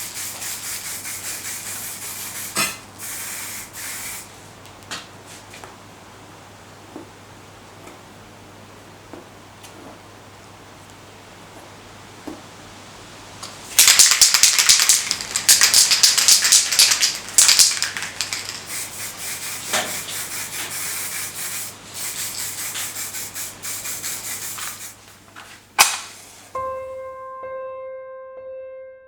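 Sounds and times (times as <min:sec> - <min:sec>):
metal being scrubbed by hand: 0:18.6 - 0:25.0.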